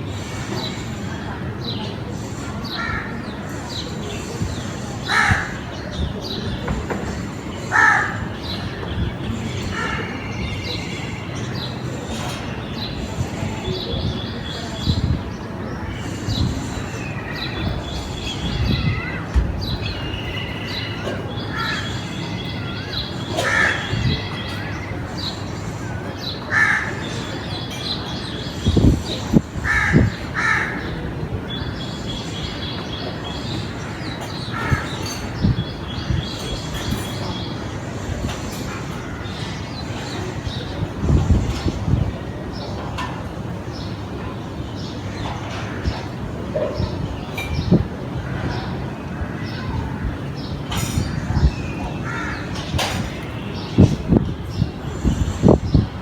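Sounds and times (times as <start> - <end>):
small birds chirping and trilling: 0.0 - 56.0
crows cawing: 5.0 - 5.8, 7.7 - 8.6, 22.7 - 24.7, 26.5 - 27.2, 29.6 - 31.0, 52.0 - 52.6.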